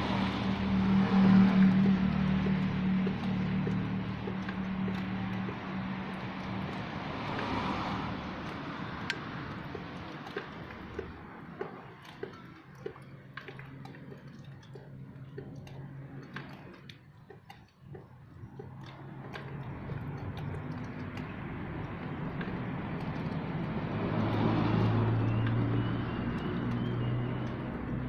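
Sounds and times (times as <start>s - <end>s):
vehicle rushing past: 0.0s - 9.5s, 19.8s - 28.0s
low engine hum: 0.0s - 28.0s
sharp ticks: 0.1s - 28.0s.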